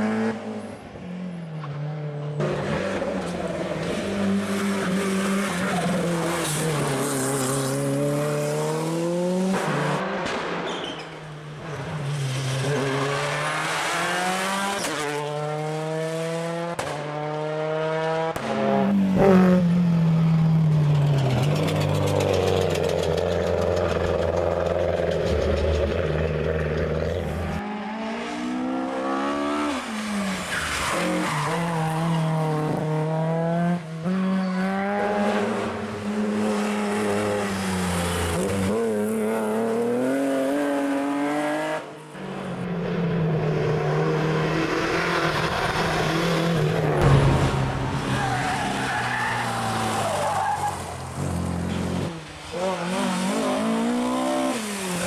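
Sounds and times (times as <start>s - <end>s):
rally car engines revving: 11.5s - 55.0s.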